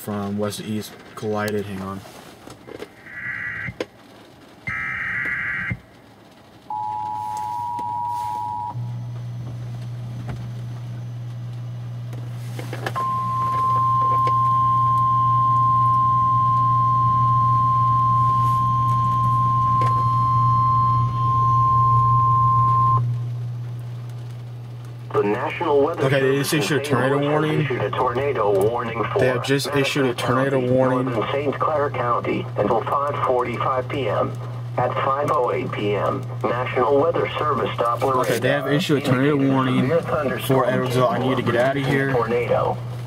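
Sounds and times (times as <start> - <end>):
low hum: 0.1 - 43.0
warbling digital data bursts: 3.0 - 3.8, 4.7 - 5.8
steady high alert tone: 6.7 - 8.8
two-tone attention signal: 6.7 - 9.0, 13.0 - 23.1.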